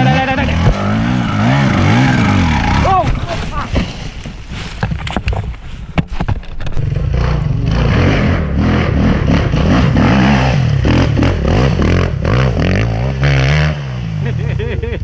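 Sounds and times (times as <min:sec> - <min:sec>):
dirt bike engine revving: 0:00.0 - 0:03.6, 0:06.7 - 0:15.0
sharp knocks and clatter: 0:03.0 - 0:07.0.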